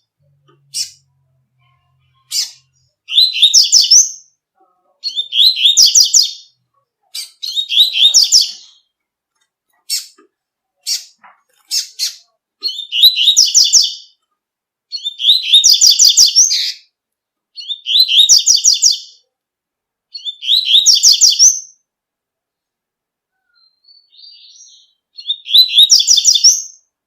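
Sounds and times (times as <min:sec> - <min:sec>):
bird song rapid high notes: 0:23.6 - 0:26.9.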